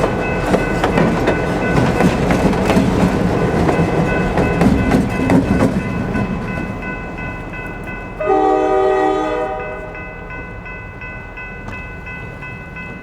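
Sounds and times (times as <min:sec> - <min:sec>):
steam locomotive rumble and clatter: 0:00.0 - 0:13.0
steam whistle blast: 0:08.2 - 0:10.0.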